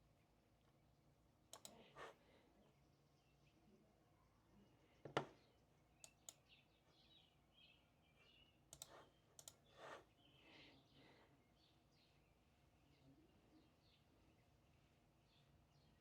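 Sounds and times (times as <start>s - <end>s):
faint bird chirps: 5.4s - 16.0s.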